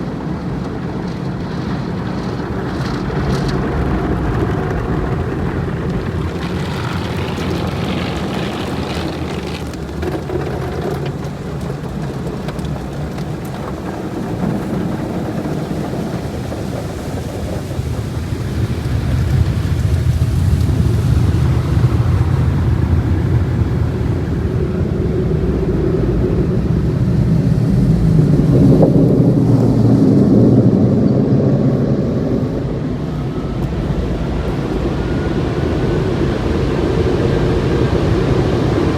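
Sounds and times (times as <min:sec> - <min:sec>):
car wash water spraying: 0:00.0 - 0:30.5.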